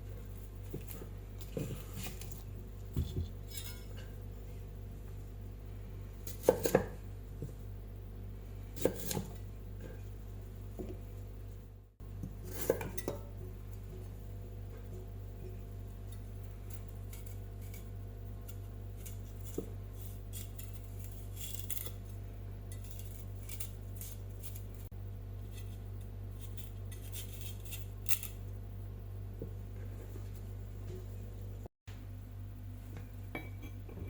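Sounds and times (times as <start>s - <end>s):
steady low hum: 0.0s - 34.0s
kitchen utensils snipping and scraping: 3.4s - 4.2s, 8.8s - 9.4s, 12.4s - 13.4s, 16.0s - 28.4s.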